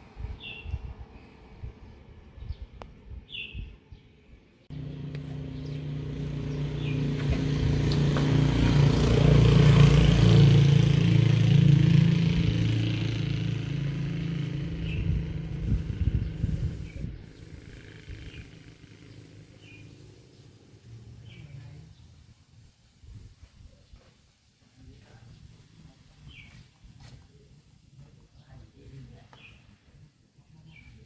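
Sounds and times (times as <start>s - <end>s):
motor engine droning: 4.7s - 21.4s.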